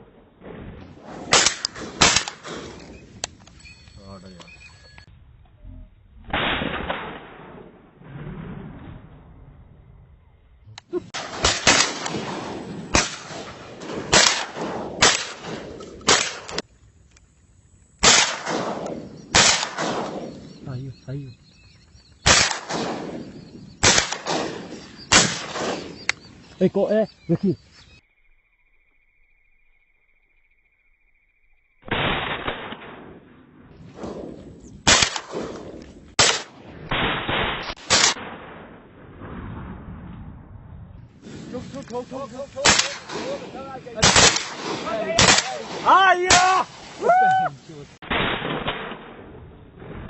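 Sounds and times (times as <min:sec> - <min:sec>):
echoing gunshots: 0:00.0 - 0:03.4, 0:06.3 - 0:09.3, 0:11.0 - 0:16.6, 0:18.0 - 0:26.6, 0:31.8 - 0:40.6, 0:41.2 - 0:47.0, 0:48.0 - 0:50.0.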